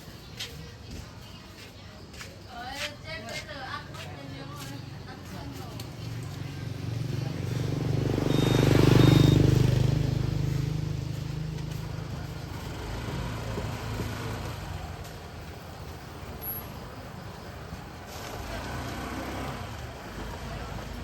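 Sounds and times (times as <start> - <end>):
vehicle engine drone: 6.2 - 21.0
short high beeps: 8.2 - 9.8.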